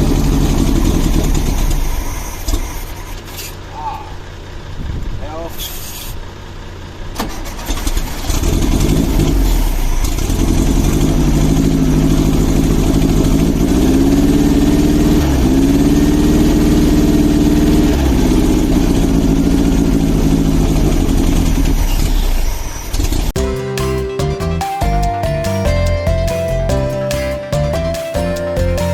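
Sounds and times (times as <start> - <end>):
car engine revving: 0.0 - 5.0, 5.7 - 23.5.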